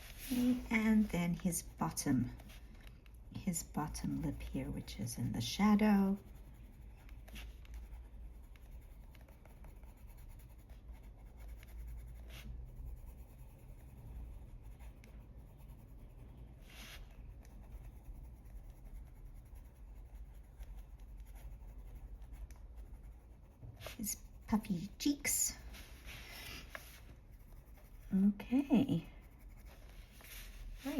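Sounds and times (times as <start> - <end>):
colored pencil scratching on paper: 0.0 - 30.9
pencil scuffs: 16.6 - 17.2, 23.5 - 28.0, 28.9 - 30.9.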